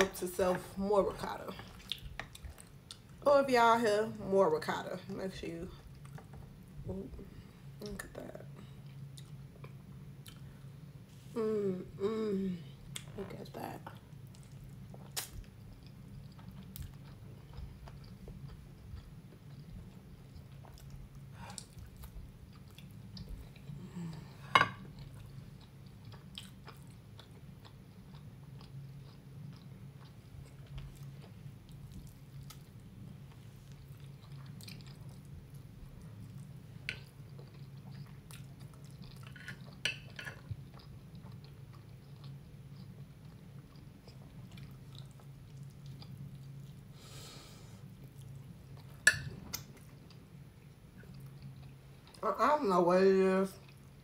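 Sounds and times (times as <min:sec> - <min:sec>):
steady low hum: 0:00.0 - 0:54.0
person chewing food: 0:01.6 - 0:03.2, 0:08.8 - 0:10.6, 0:13.9 - 0:52.2, 0:53.6 - 0:54.0.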